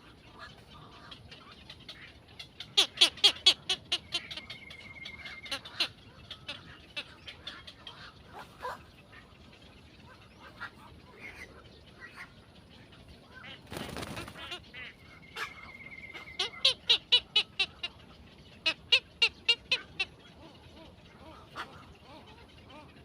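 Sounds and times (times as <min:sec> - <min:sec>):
small birds chirping: 0:00.0 - 0:23.0
quick sharp bird calls: 0:13.4 - 0:17.9.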